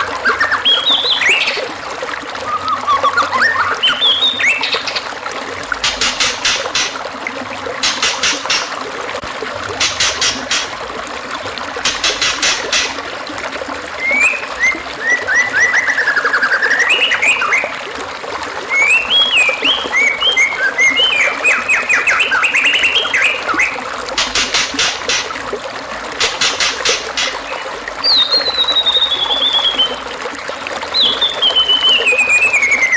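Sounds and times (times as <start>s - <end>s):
songbird singing: 0.0s - 1.7s, 2.4s - 5.1s, 14.0s - 17.7s, 18.7s - 23.8s, 27.2s - 30.0s, 30.9s - 32.9s
trickling stream: 0.0s - 32.9s.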